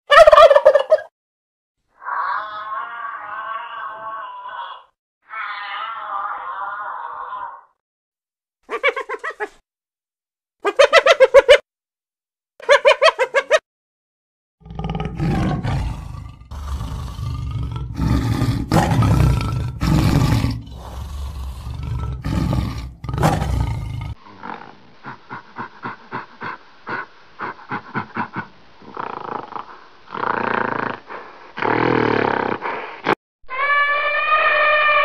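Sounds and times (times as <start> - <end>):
tiger roaring: 14.6 - 24.8
tiger grunting: 14.6 - 31.0
hyena giggling: 24.5 - 29.0.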